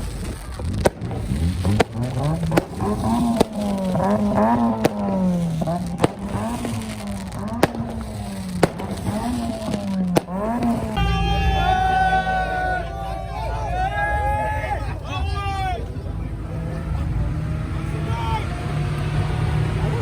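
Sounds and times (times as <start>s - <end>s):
sharp cracks: 0.0s - 11.2s
car engine revving: 0.0s - 20.0s.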